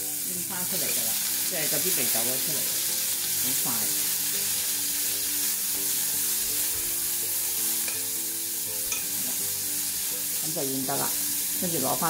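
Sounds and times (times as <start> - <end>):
bean sprouts sizzling in a pan: 0.0 - 12.0
chopsticks stirring: 5.3 - 9.6.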